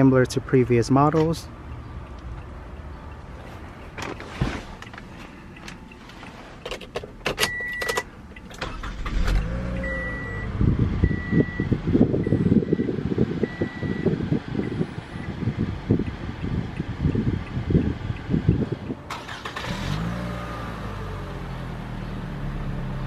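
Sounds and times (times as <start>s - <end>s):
car engine starting and running: 0.0s - 23.0s
short beep: 9.7s - 12.9s
dashboard chime beeping: 9.7s - 14.1s.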